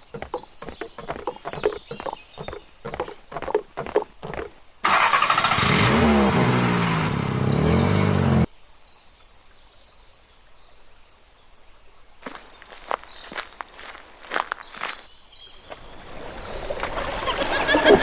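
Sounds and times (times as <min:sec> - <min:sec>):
faint birds chirping: 0:00.0 - 0:04.6, 0:12.2 - 0:16.5.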